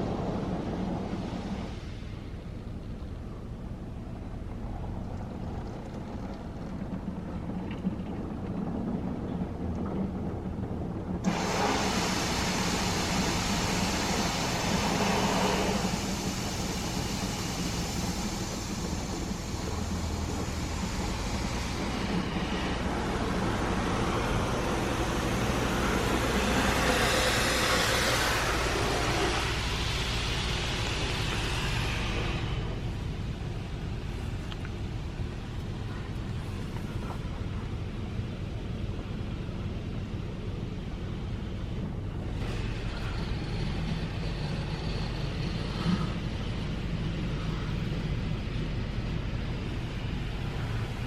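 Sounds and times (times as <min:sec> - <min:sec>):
hiss: 0:00.0 - 0:03.0, 0:11.2 - 0:37.4, 0:42.3 - 0:51.0
car wash equipment rushing: 0:00.0 - 0:51.0
low hum: 0:00.0 - 0:51.0.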